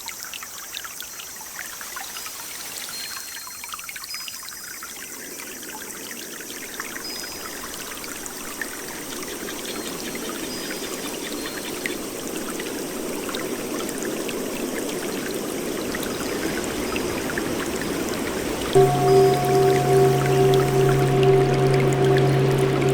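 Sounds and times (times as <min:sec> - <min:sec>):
rain and running water: 0:10.5 - 0:22.9.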